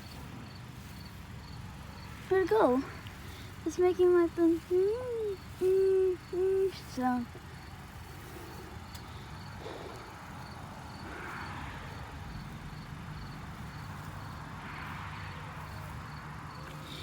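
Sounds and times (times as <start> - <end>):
distant traffic rumble: 0.0 - 17.0.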